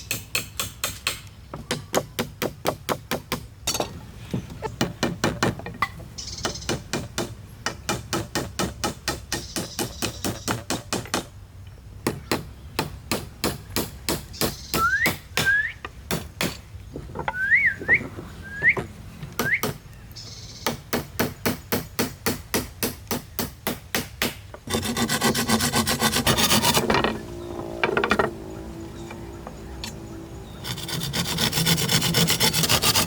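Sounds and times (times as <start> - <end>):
hammer striking wood: 0.1 - 3.9
rasping on wood: 24.7 - 26.9, 30.6 - 33.0.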